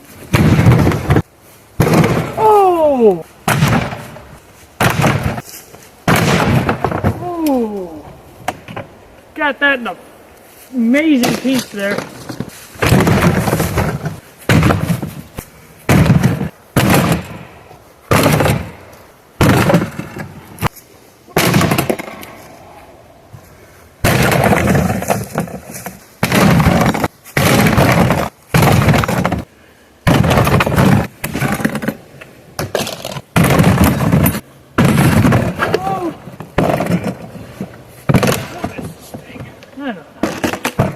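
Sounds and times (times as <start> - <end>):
metal and plastic crashing and breaking: 32.7 - 35.6.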